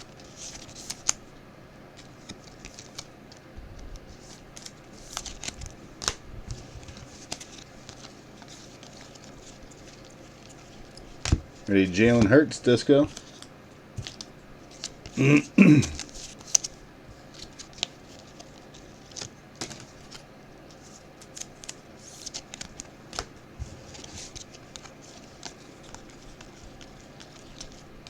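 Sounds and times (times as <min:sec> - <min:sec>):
cards clicking and rustling: 0:00.1 - 0:01.2, 0:02.0 - 0:03.4, 0:04.0 - 0:15.2, 0:15.8 - 0:28.0
person speaking: 0:11.7 - 0:13.2, 0:15.2 - 0:16.1.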